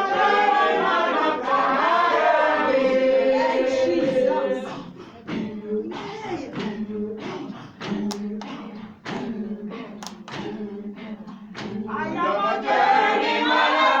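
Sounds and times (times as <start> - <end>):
group chanting and groaning: 0.0 - 14.0
group singing and shouting: 0.0 - 14.0
sharp claps: 7.8 - 11.9.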